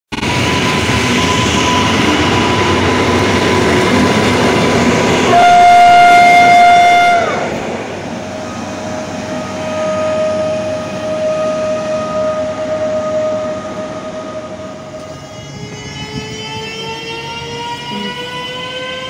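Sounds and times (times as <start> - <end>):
train rumble with thin whine: 0.1 - 19.0
train horn: 5.2 - 7.5, 8.4 - 19.0.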